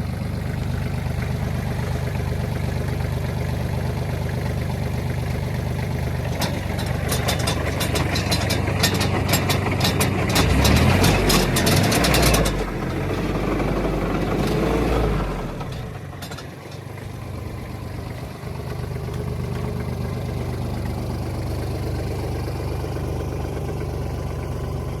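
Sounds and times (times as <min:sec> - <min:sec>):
tractor diesel engine running: 0:00.0 - 0:25.0
rapid clatter of sharp ticks: 0:06.2 - 0:14.6.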